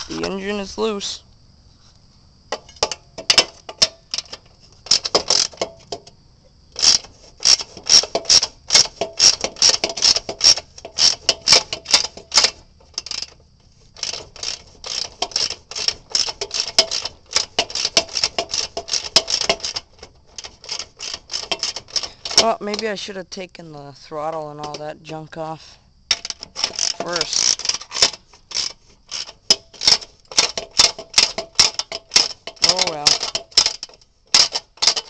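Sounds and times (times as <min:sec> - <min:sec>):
ratchet wrench clicking: 0:02.5 - 0:06.0, 0:06.8 - 0:13.4, 0:14.0 - 0:22.8, 0:26.1 - 0:35.0.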